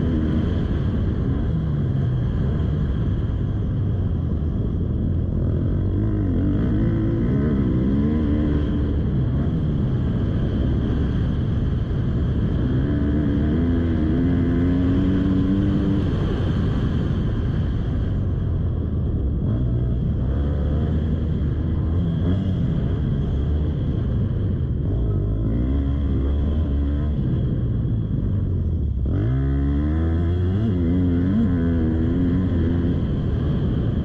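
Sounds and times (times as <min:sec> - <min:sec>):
motocross bike engine revving: 0:05.2 - 0:16.7, 0:28.9 - 0:33.8.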